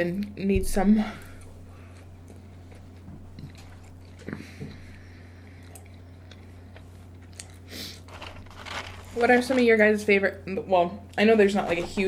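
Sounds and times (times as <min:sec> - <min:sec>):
steady low hum: 0:00.0 - 0:12.0
biting and chewing: 0:01.8 - 0:09.2.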